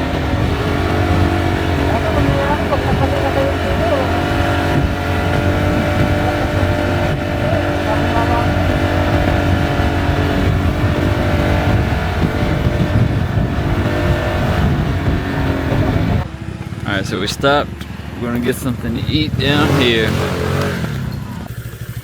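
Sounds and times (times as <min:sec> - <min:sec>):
wind rumble on microphone: 0:00.0 - 0:16.3
motorbike engine running: 0:00.0 - 0:22.0.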